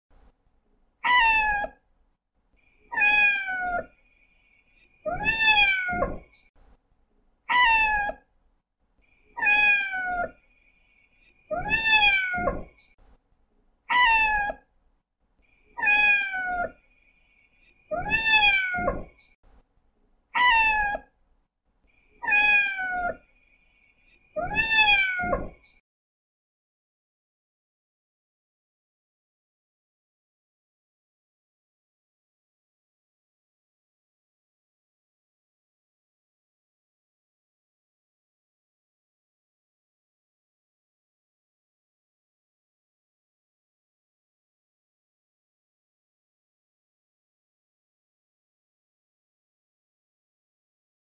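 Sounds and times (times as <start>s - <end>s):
cat meowing: 1.0s - 1.8s, 2.9s - 3.9s, 5.0s - 6.3s, 7.5s - 8.3s, 9.4s - 10.4s, 11.5s - 12.8s, 13.9s - 14.7s, 15.8s - 16.8s, 17.9s - 19.2s, 20.4s - 21.2s, 22.2s - 23.2s, 24.4s - 25.6s.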